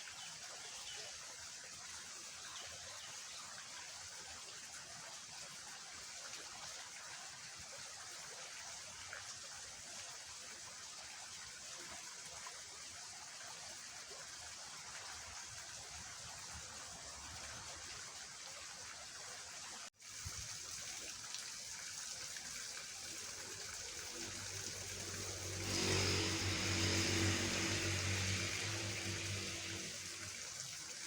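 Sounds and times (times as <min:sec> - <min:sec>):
ditch water rushing: 0:20.1 - 0:31.0
low humming drone: 0:24.2 - 0:30.4.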